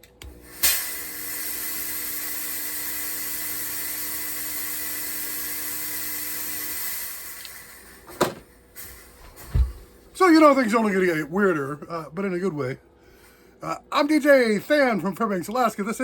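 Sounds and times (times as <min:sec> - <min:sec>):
steady hiss: 0:00.4 - 0:10.6.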